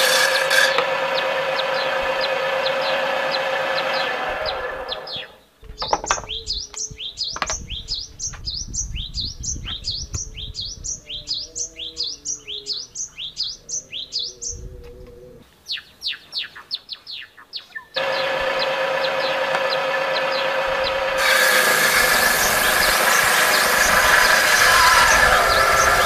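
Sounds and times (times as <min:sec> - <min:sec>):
water pump motor winding down: 0:00.0 - 0:05.2, 0:18.0 - 0:26.0
bird singing downward chirps: 0:01.1 - 0:14.8, 0:15.6 - 0:21.2, 0:21.8 - 0:26.0.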